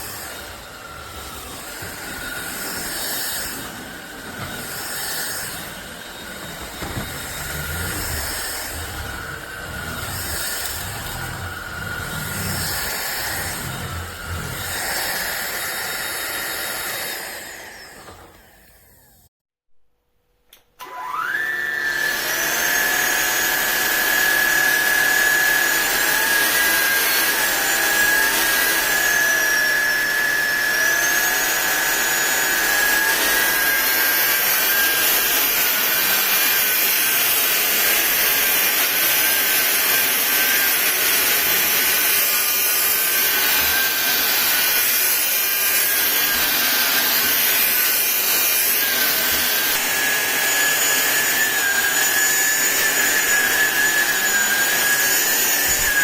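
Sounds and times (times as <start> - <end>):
gliding tones: 0.0 - 17.8
vacuum cleaner motor whining: 0.0 - 19.3, 20.8 - 56.0.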